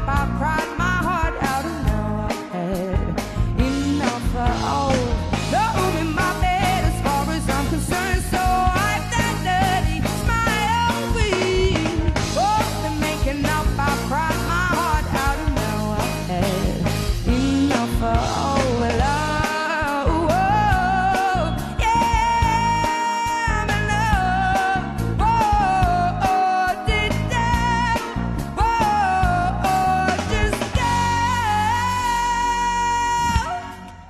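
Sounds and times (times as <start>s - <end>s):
live soul-pop band music: 0.0s - 34.0s
person singing: 0.0s - 34.0s.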